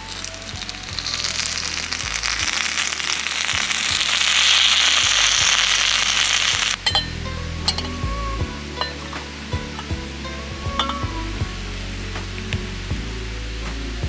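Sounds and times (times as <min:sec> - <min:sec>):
hot oil sizzling and crackling: 0:00.0 - 0:14.0.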